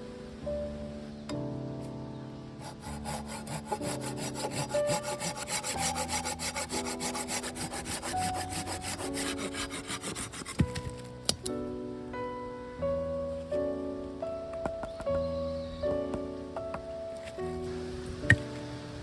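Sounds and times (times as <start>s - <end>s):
soft background music: 0.0s - 19.0s
hand saw cutting wood: 2.6s - 11.0s.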